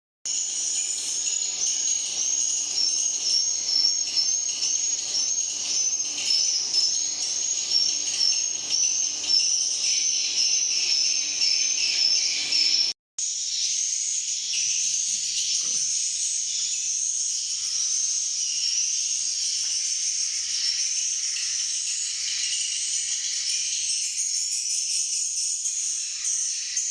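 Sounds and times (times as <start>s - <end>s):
swiftlets chirping chorus: 0.5s - 13.0s.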